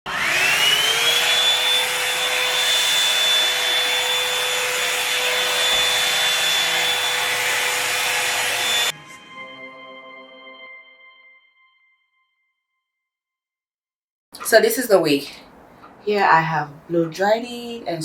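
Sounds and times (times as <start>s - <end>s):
hair dryer running: 0.1s - 8.9s.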